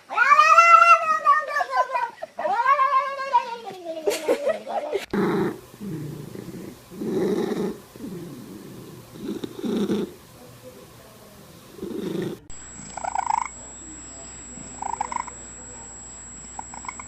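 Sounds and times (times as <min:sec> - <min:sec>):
cat yowling: 0:00.0 - 0:01.8
cat purring loudly: 0:05.1 - 0:10.2, 0:11.6 - 0:13.5.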